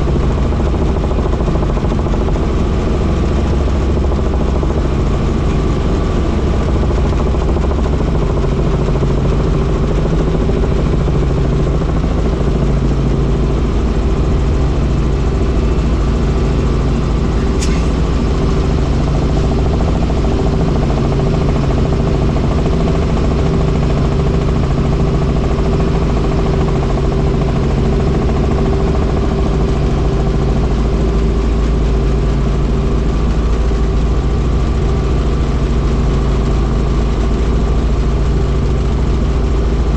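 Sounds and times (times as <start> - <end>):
helicopter engine and rotor: 0.0 - 39.9
brief click: 17.6 - 18.0.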